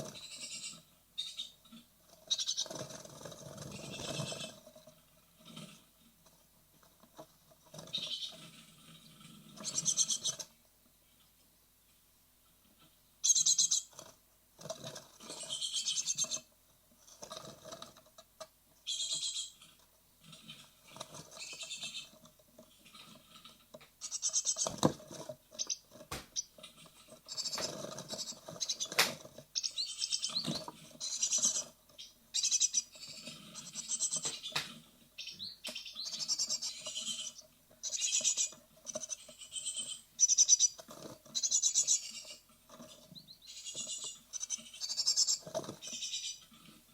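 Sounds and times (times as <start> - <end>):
nestlings chirping: 0.0 - 4.8, 7.7 - 10.5, 13.2 - 14.1, 14.8 - 18.0, 18.8 - 19.8, 20.4 - 46.6
scratching and rustling in nest box: 20.3 - 32.0.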